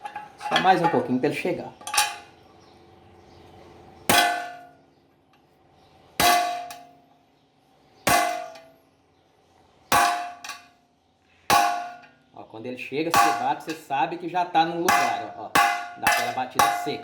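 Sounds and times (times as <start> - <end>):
hammer clanging on metal washer: 13.1 - 13.9, 14.8 - 17.0.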